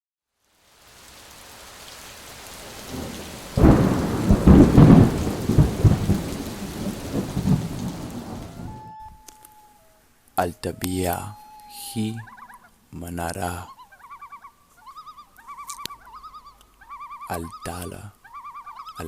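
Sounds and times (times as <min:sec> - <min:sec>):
rain hiss: 0:00.3 - 0:08.8
rolling thunder: 0:02.4 - 0:08.9.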